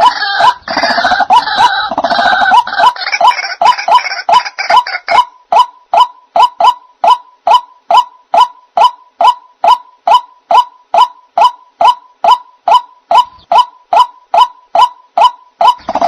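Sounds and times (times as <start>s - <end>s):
faint steady tone: 4.0s - 16.0s.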